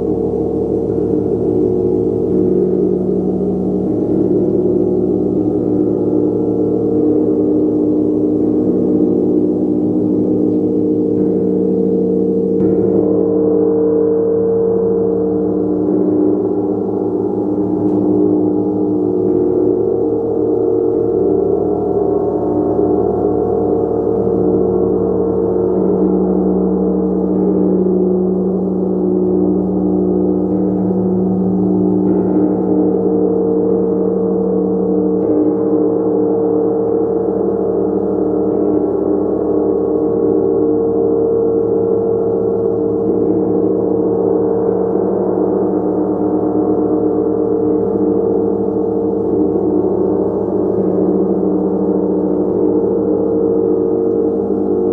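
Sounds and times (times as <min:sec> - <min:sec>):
gong ringing: 0:00.0 - 0:35.7.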